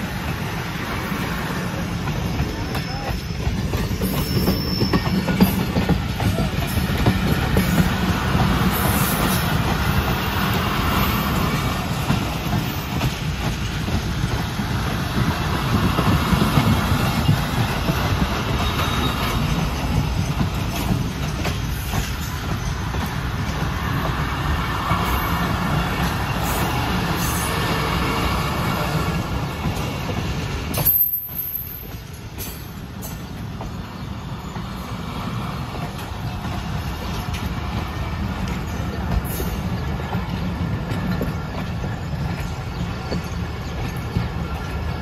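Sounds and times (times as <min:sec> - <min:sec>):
train rumbling on rails: 0:00.0 - 0:45.0.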